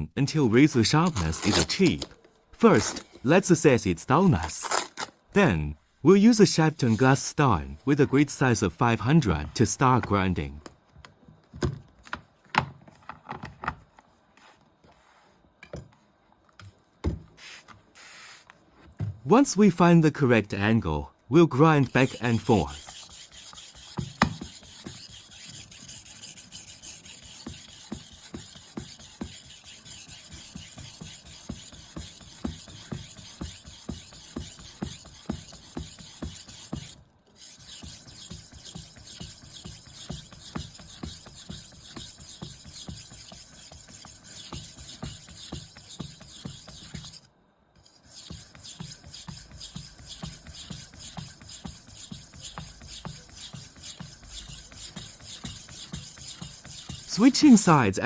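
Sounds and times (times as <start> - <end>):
knife scraping on whetstone: 0.5 - 2.1, 21.8 - 57.9.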